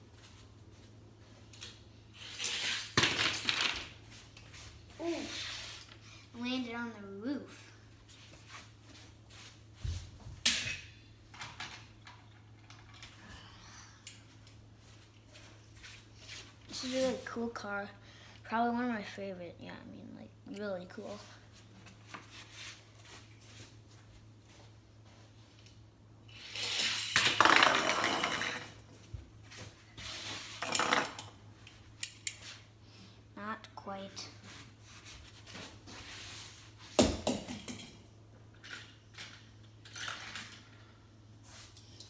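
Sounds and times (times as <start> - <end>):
toy car rolling on plastic track: 26.3 - 28.7, 38.6 - 40.8.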